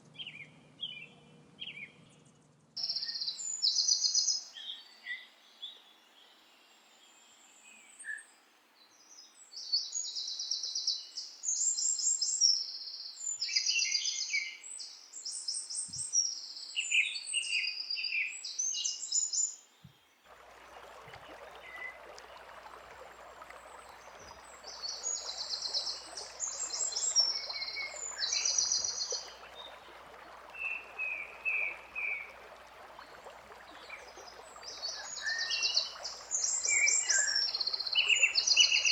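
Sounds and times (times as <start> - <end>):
faint hiss: 2.8 - 38.9
songbirds trilling: 20.4 - 38.9.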